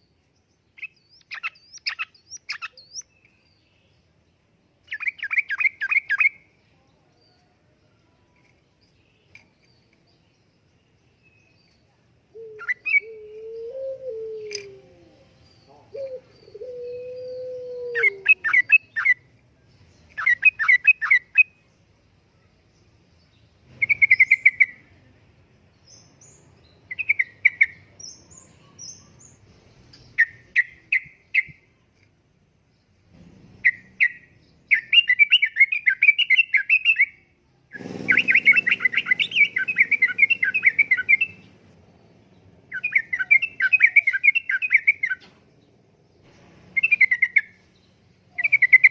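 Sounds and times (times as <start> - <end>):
low gliding hoot: 12.3 - 18.6
bulbul chattering song: 12.4 - 19.4, 20.0 - 21.6, 23.7 - 25.0, 33.3 - 45.4, 46.2 - 48.9.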